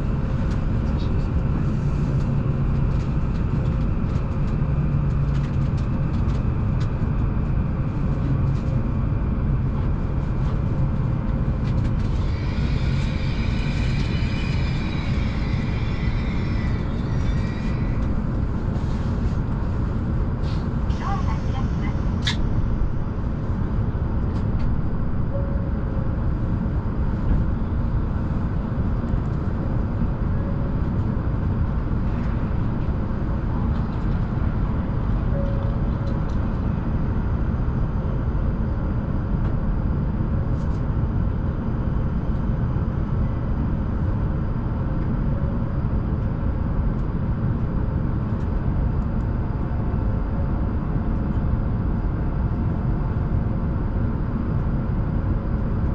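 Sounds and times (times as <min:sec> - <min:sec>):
train wheels rumbling inside car: 0:00.0 - 0:38.2.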